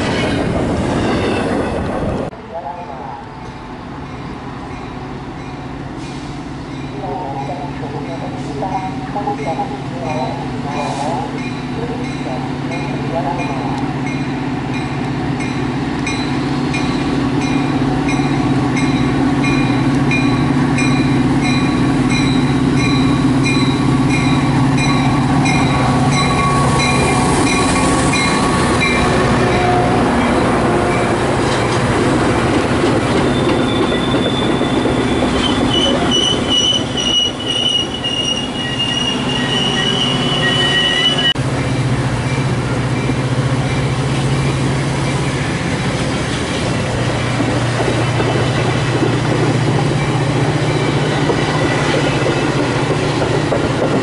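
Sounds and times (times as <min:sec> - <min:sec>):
train wheels squealing on rails: 0:33.1 - 0:41.4.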